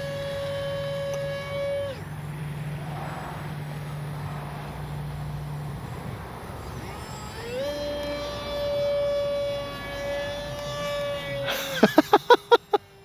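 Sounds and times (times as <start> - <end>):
rushing background noise: 0.0 - 12.3
model plane motor whining: 0.0 - 13.0.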